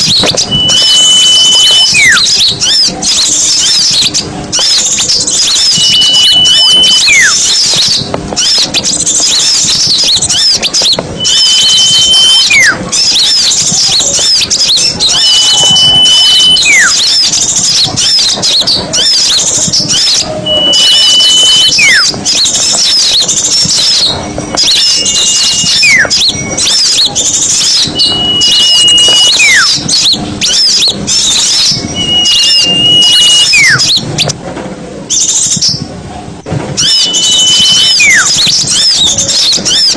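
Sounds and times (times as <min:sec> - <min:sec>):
bird call with falling whistle: 0:00.0 - 0:34.4, 0:36.8 - 0:39.9
songbirds chattering and twittering: 0:00.0 - 0:34.4, 0:35.0 - 0:39.9.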